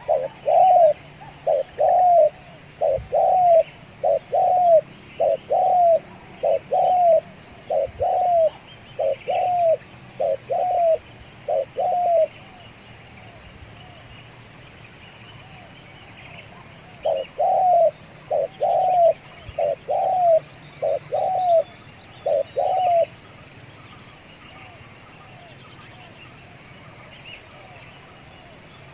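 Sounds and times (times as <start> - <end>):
dove cooing: 0.0 - 12.6, 16.5 - 23.2
birds chirping: 0.0 - 28.9.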